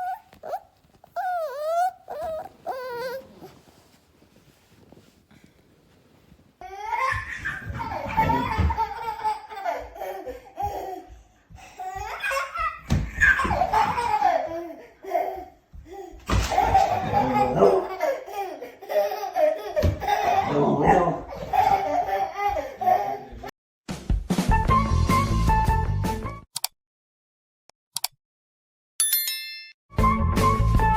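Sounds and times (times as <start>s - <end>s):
person laughing hard: 7.9s - 10.1s, 16.7s - 18.0s.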